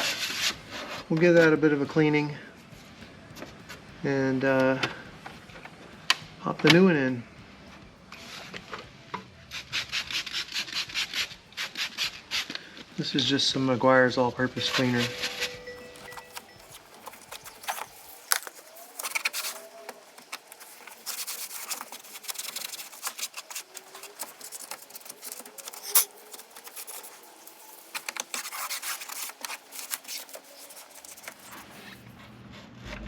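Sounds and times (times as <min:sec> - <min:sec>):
scrubbing plastic: 0:15.8 - 0:32.2.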